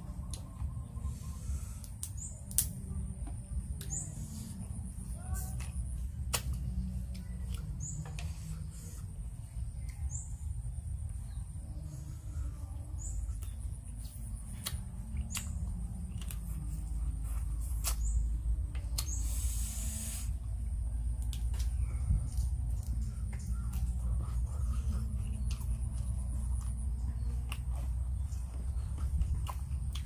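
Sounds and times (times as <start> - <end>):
steady low rumble: 0.0 - 30.0
sucking food off fingers: 11.7 - 21.7.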